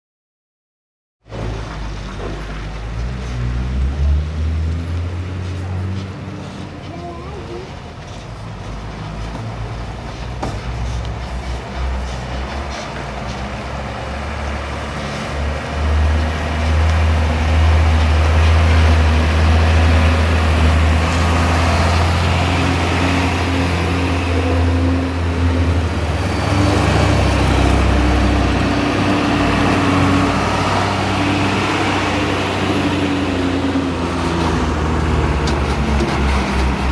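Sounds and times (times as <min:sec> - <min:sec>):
truck engine running: 0:08.0 - 0:36.9.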